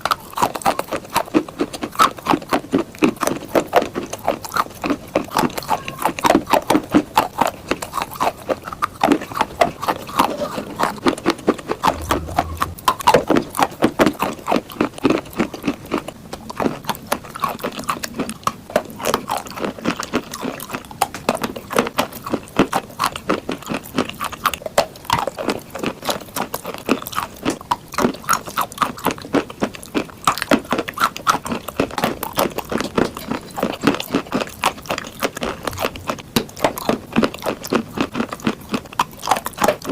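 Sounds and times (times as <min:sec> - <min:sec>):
person chewing chalk crunching: 0:22.0 - 0:39.9.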